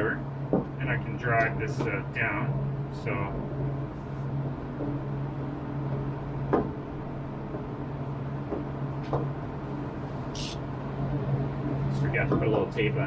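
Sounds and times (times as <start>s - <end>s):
workshop hum: 9.9s - 10.9s
short hiss: 10.4s - 10.6s.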